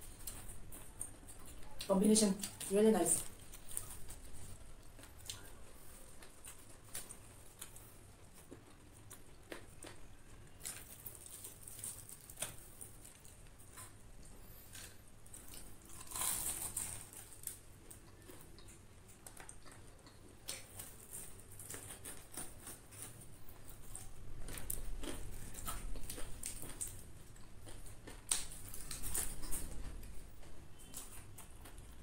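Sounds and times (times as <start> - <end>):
chewing and crunching fried chicken: 0.0 - 32.0
crisp bite into lettuce: 14.7 - 17.6.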